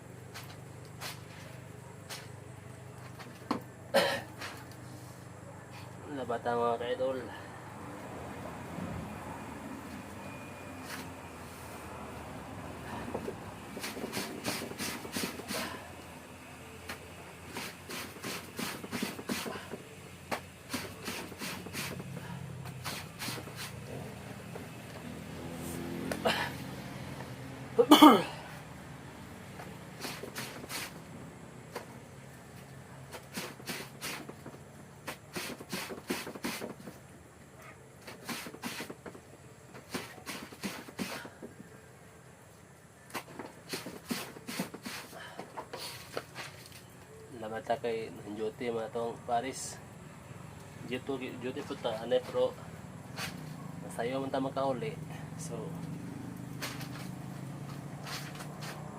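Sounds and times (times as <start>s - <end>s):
clothes scrubbed by hand: 13.7s - 15.8s, 17.5s - 19.8s, 20.7s - 23.9s, 29.9s - 31.0s, 33.1s - 36.9s, 38.0s - 39.0s, 39.8s - 41.4s, 43.2s - 45.2s, 53.1s - 53.6s, 56.4s - 58.9s.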